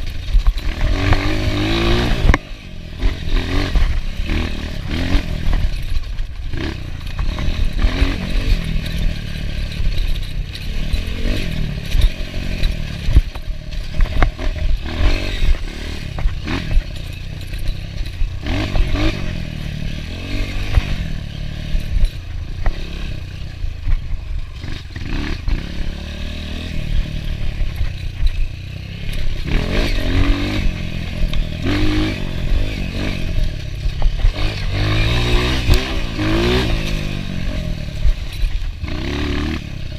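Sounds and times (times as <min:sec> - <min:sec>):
rattles and knocks: 0:00.0 - 0:25.6
dirt bike engine revving: 0:00.0 - 0:39.9.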